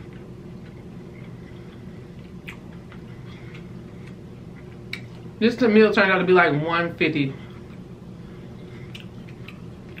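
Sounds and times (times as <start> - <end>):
low background hum: 0.0 - 10.0
mouth clicks and smacks chewing: 2.2 - 5.2, 8.9 - 10.0.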